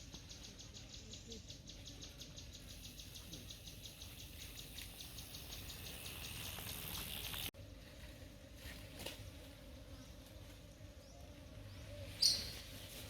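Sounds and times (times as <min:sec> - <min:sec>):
insects calling in rapid pulses: 0:00.9 - 0:07.5.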